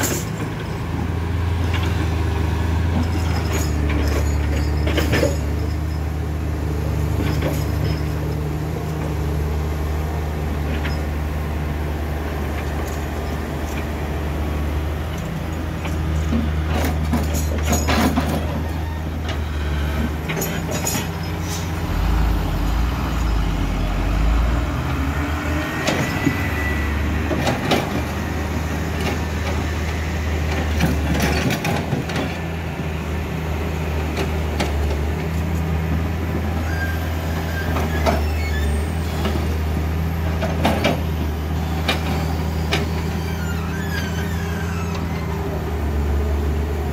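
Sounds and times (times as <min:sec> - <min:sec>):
diesel truck engines droning: 0:00.0 - 0:46.9.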